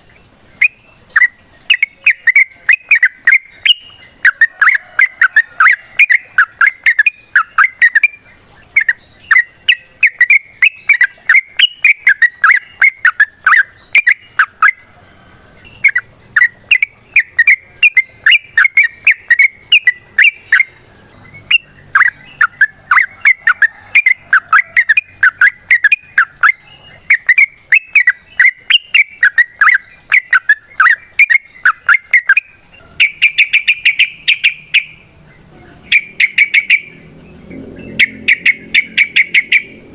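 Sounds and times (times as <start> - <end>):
bird singing bubbly chattering notes: 0.0 - 14.9, 15.6 - 39.9.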